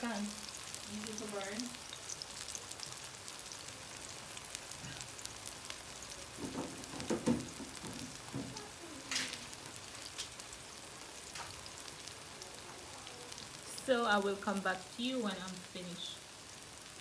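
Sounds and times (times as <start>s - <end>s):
slices frying in hot oil: 0.0s - 17.0s
loud knocks: 6.4s - 8.5s.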